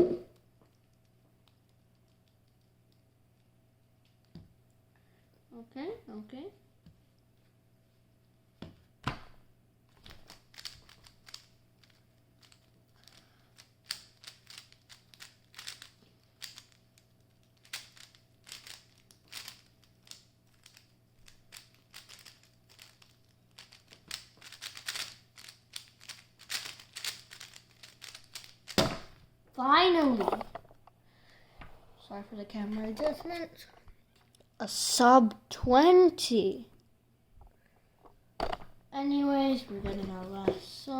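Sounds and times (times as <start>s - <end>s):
puzzle cube plastic clicking: 0.7s - 4.4s, 10.0s - 28.8s.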